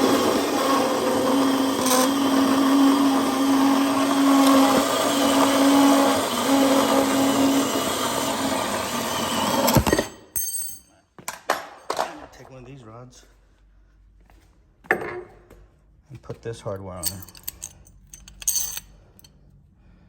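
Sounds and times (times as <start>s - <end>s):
power tool cutting metal rod: 0.0s - 10.2s.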